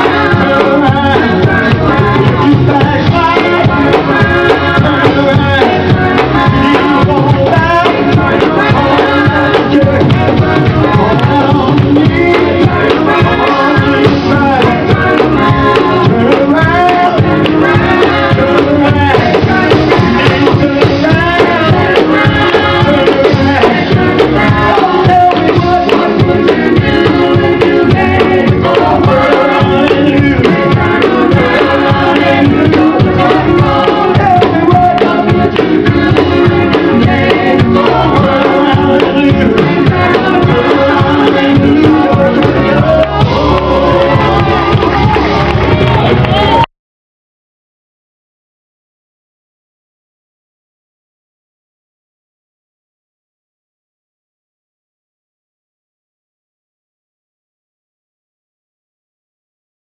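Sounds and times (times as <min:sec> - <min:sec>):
group singing: 0:00.0 - 0:46.6
band with drums: 0:00.0 - 0:46.7.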